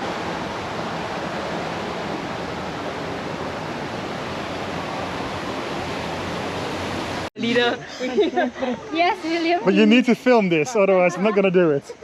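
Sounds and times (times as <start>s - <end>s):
water rushing: 0.0s - 7.8s.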